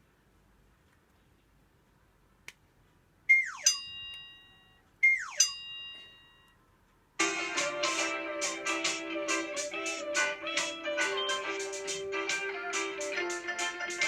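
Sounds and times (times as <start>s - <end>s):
falling swoop with ringing chime: 3.6s - 6.5s.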